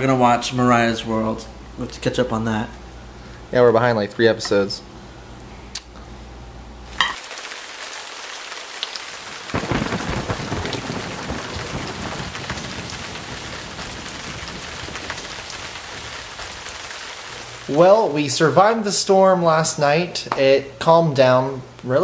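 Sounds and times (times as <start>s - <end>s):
heavy rain pouring: 7.2s - 18.8s
deep thunder rumble: 9.5s - 17.4s.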